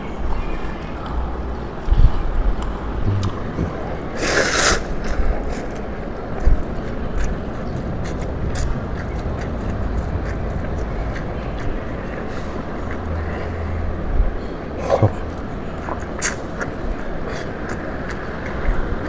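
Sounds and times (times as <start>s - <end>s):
wet mouth clicks: 2.6s - 5.8s, 14.8s - 19.0s
chewing and slurping: 2.6s - 13.6s, 14.7s - 19.0s.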